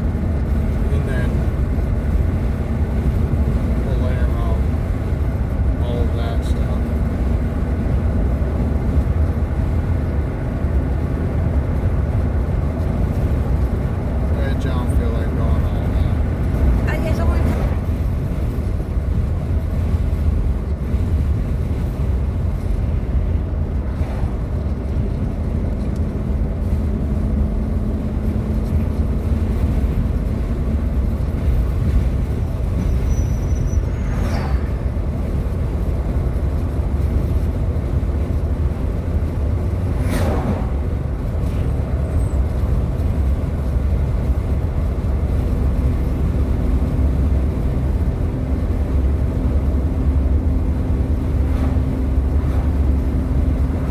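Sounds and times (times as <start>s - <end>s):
car cabin road and engine rumble: 0.0s - 53.9s
brief sweeping sounds: 33.7s - 35.3s, 39.9s - 40.9s.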